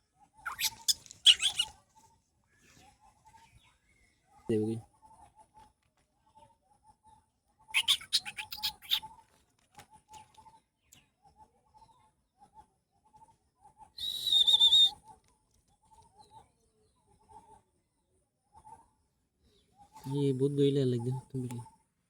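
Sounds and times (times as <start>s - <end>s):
soft short bird calls: 0.4s - 1.7s, 7.7s - 9.1s, 14.0s - 15.0s
loud high wavering bird call: 0.5s - 1.7s, 14.0s - 14.9s.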